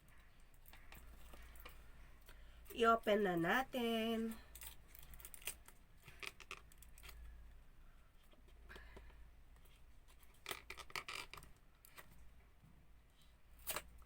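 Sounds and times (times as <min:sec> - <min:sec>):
package being handled and opened: 0:04.5 - 0:07.4.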